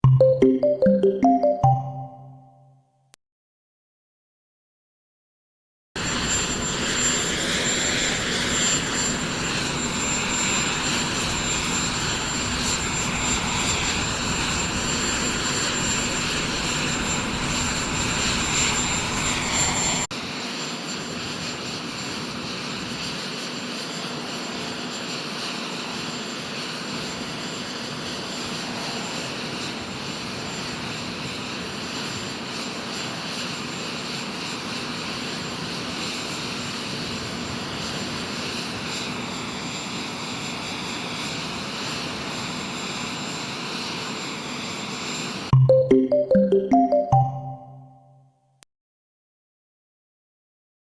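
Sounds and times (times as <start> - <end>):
high-pitched engine whine: 6.0 - 44.7.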